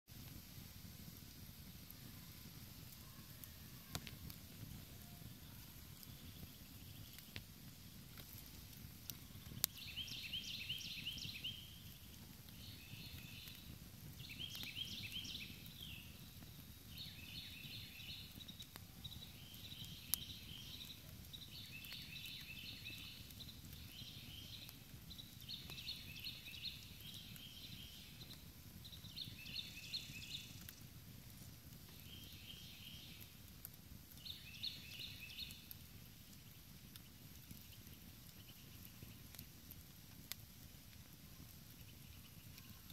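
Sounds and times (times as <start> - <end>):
campfire hiss: 0.1 - 42.9
fire crackling pops: 0.1 - 42.9.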